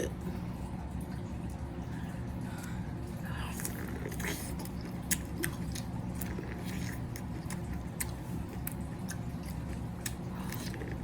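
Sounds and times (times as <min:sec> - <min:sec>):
steady low hum: 0:00.0 - 0:11.0
chewing and biting: 0:03.5 - 0:11.0.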